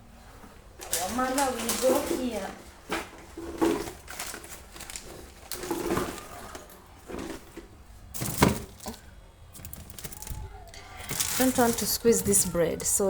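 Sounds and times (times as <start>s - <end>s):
food packets rustling: 0.8s - 13.0s.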